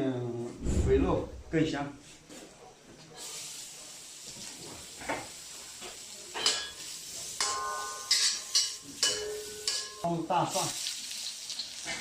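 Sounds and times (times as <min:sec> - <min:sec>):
pork sizzling in a wok: 0:03.2 - 0:12.0
metal spatula clanking on pan: 0:06.3 - 0:06.8, 0:07.4 - 0:10.1.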